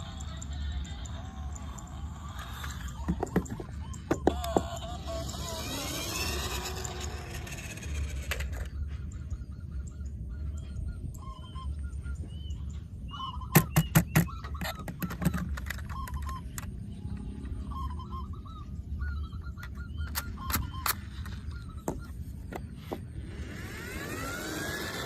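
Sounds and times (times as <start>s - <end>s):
low steady hum: 0.0s - 25.0s
bird honking calls: 8.6s - 23.1s.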